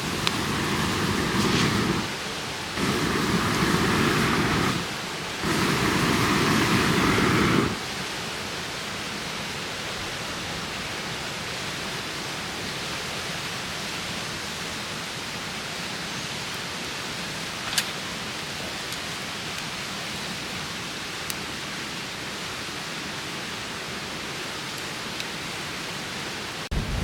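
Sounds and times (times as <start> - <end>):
strong wind blowing: 0.0 - 7.8, 26.7 - 27.0.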